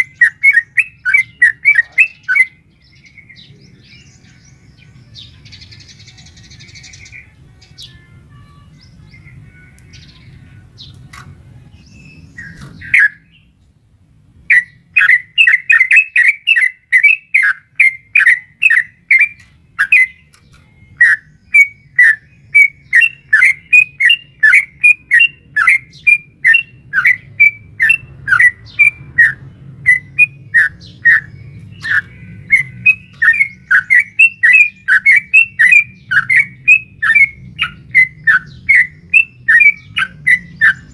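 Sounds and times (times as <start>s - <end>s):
bird rapid chattering call: 0.0s - 2.5s, 14.5s - 20.3s, 21.0s - 40.9s.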